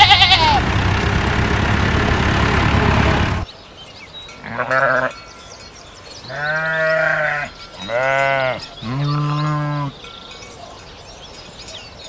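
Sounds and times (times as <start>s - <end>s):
sheep bleating: 0.0s - 0.6s, 4.4s - 5.2s, 6.2s - 9.9s
steady noisy rumble: 0.1s - 3.5s.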